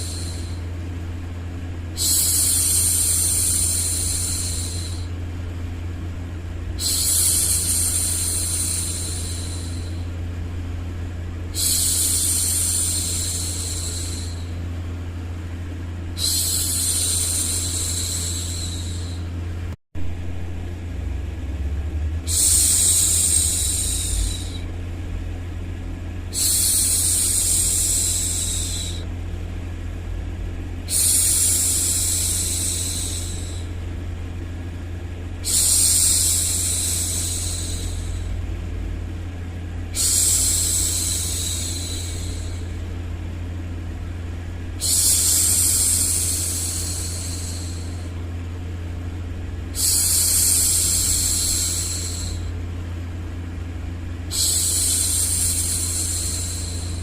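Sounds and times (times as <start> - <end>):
steady low hum: 0.0 - 57.0
woman shushing: 16.2 - 19.3, 22.3 - 24.7, 26.3 - 29.1, 35.4 - 38.4, 40.0 - 42.8, 44.8 - 48.2.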